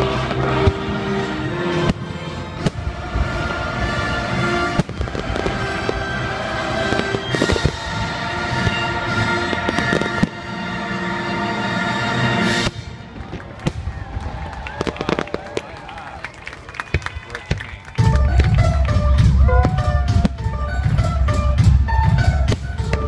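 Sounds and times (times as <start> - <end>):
fireworks bursting and crackling: 0.0 - 11.3, 12.2 - 23.0
music: 0.0 - 13.1, 17.9 - 23.0.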